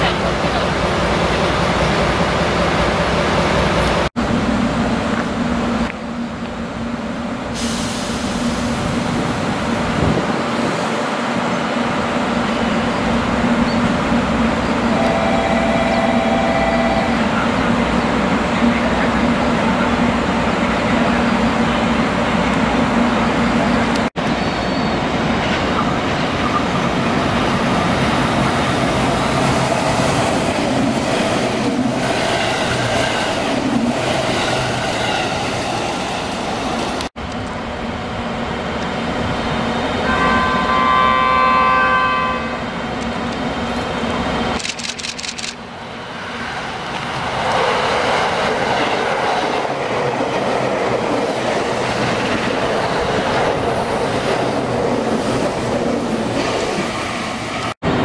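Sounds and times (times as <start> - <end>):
trains rumbling by: 0.0 - 58.0
train horn: 14.9 - 17.3, 40.0 - 42.7.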